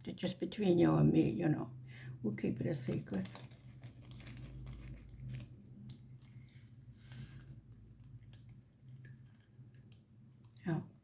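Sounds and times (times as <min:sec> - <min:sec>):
plastic bag rattling rustle: 0:02.7 - 0:05.6.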